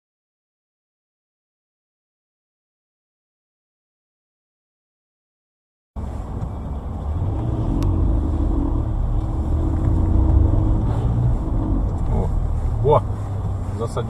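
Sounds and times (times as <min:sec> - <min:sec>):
car engine and road noise: 0:06.0 - 0:14.0.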